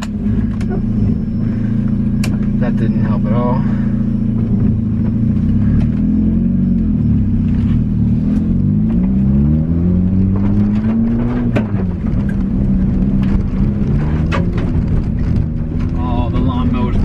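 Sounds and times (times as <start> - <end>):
car engine revving: 0.0 - 17.0
sharp clicks and knocks: 10.2 - 16.0.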